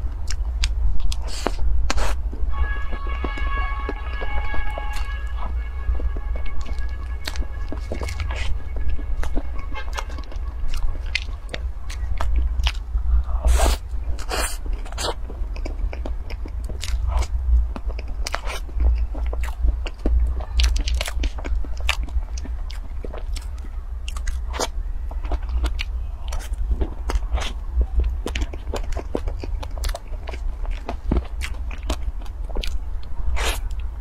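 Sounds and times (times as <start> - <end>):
low hum: 0.0 - 34.0
wet chewing and mouth clicks: 0.0 - 34.0.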